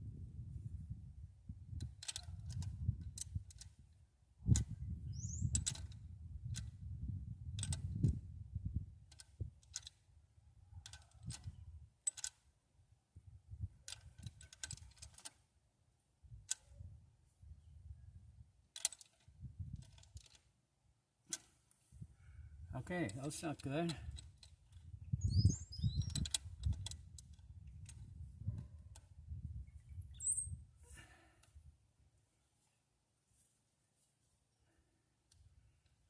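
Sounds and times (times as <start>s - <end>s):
brief squeak: 25.2s - 26.3s, 29.8s - 30.6s.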